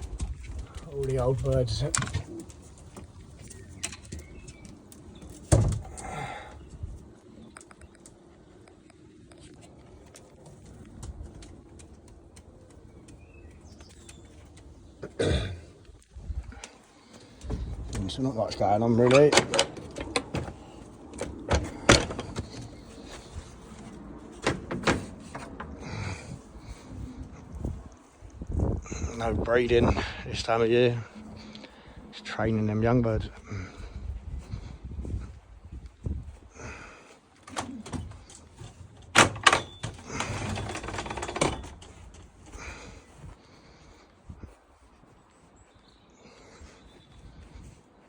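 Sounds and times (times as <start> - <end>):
sharp knocks and clicks: 19.0 - 22.8, 24.4 - 25.8, 37.4 - 42.2.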